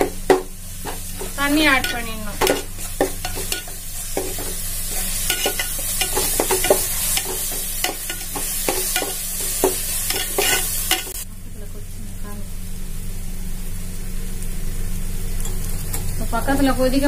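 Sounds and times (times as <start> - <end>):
vegetables sizzling in hot oil: 0.0 - 11.2.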